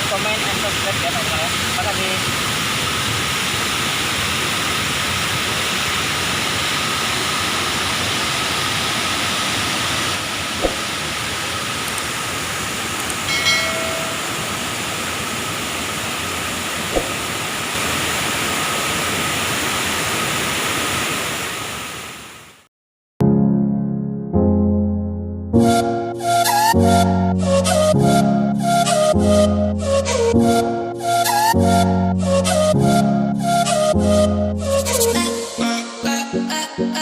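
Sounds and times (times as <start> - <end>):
water rushing over waterfall: 0.0 - 22.6.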